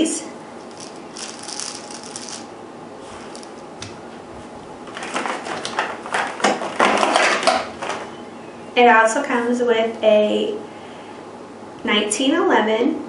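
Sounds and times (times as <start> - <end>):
plastic packaging clicks and rustles: 0.6 - 2.5, 3.3 - 3.6.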